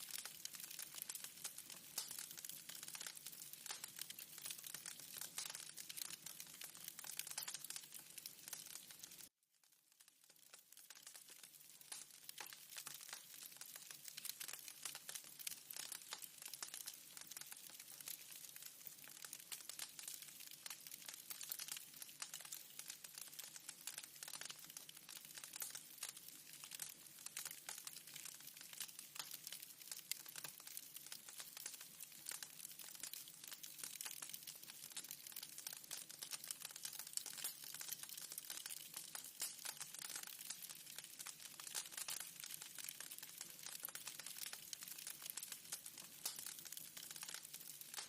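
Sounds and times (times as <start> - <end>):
fire crackling: 0.0 - 48.0.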